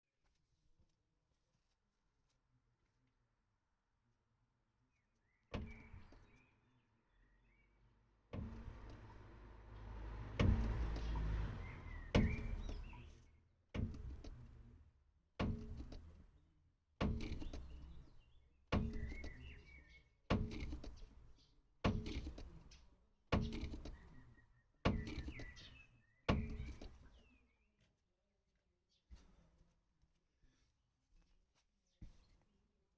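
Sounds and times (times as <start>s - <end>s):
car suspension knocking: 8.3s - 14.8s, 15.4s - 16.2s, 17.0s - 21.1s, 21.8s - 22.7s, 23.3s - 24.2s, 24.8s - 27.1s.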